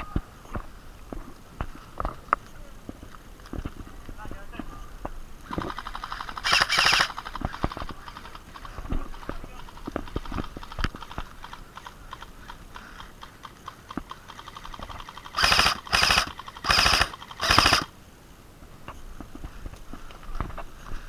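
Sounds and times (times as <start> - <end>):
airsoft rifle full-auto bursts: 5.5 - 17.9.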